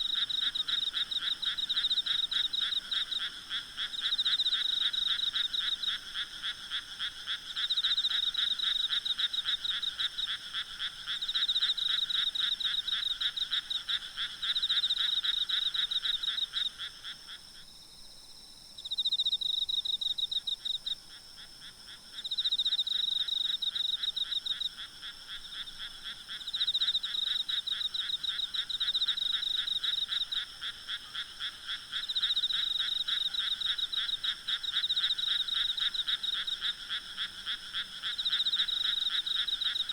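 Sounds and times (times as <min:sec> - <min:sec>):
frogs calling: 0:00.0 - 0:17.4, 0:18.9 - 0:39.9.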